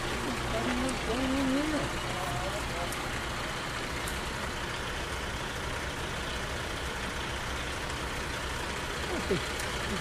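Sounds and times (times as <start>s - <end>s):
large vehicle engine idling: 0.0s - 10.0s
outdoor noise: 0.0s - 10.0s.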